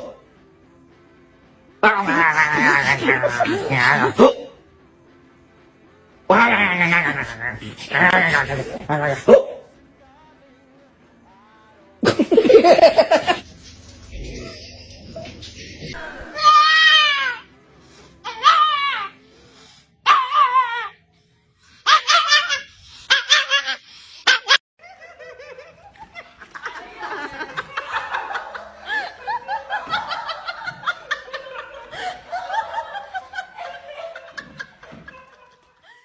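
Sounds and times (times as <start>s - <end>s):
laughter: 12.0s - 13.4s, 24.3s - 36.0s.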